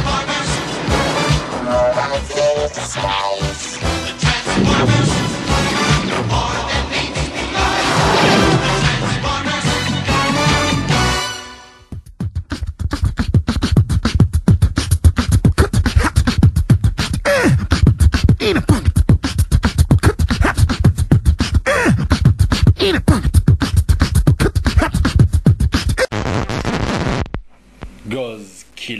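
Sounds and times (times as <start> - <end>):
falling vocal sweeps: 1.0 - 10.0
person imitating a helicopter: 1.6 - 3.6, 12.4 - 26.1.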